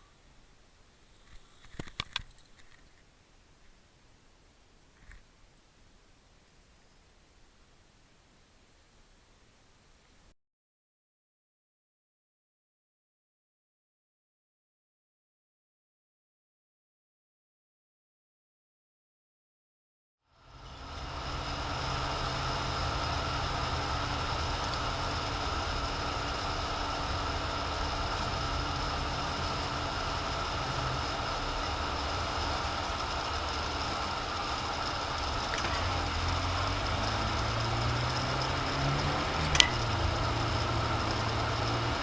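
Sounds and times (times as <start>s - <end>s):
vehicle engine humming: 20.4s - 42.0s
sharp click: 35.2s - 41.7s.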